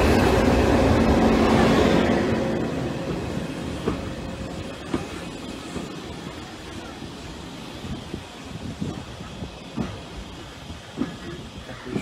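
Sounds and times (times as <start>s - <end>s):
railway carriage rumbling: 0.0s - 12.0s
train wheel knocks: 8.9s - 12.0s.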